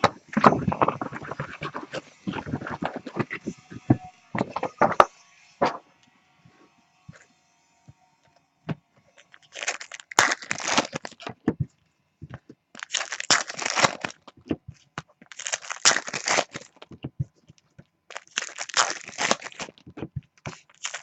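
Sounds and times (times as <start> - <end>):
card pack wrappers tearing and crinkling: 0.0 - 5.0, 9.2 - 11.4, 12.8 - 14.6, 15.2 - 17.0, 17.6 - 21.0.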